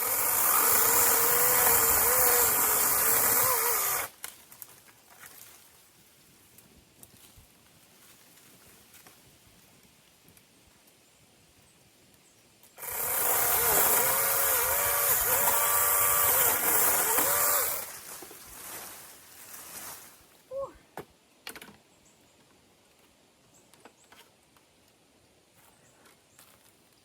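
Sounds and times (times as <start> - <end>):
power saw cutting branch: 0.0 - 4.2, 12.8 - 19.0.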